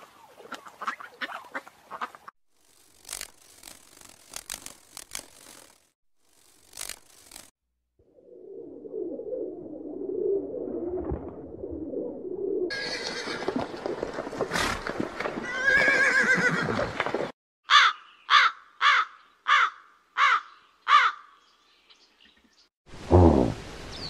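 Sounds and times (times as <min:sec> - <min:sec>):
horse whinnying: 0:12.7 - 0:13.6, 0:15.4 - 0:16.9
crow cawing: 0:17.6 - 0:21.4.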